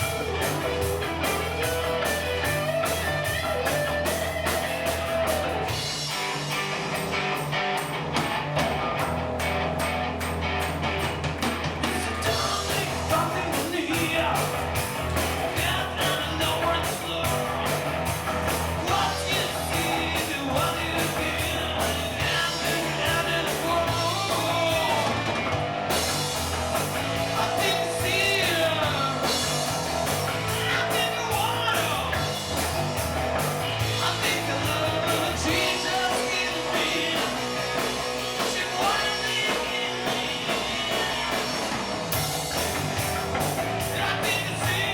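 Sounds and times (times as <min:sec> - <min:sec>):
electric guitar bending notes: 0:00.0 - 0:13.5
live rock band: 0:00.0 - 0:44.9.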